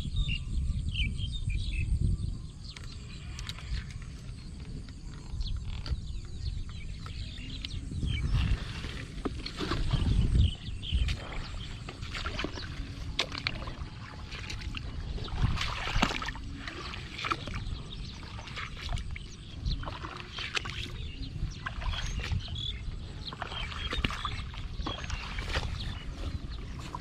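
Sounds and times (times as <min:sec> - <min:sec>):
water splashing and sloshing: 0:02.7 - 0:27.0.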